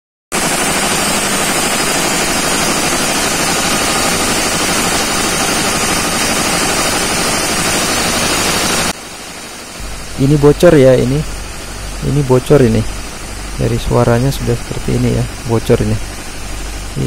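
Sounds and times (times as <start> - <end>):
diesel generator engine running: 0.4 - 9.2, 9.8 - 17.0
gas escaping past injector: 9.8 - 17.0.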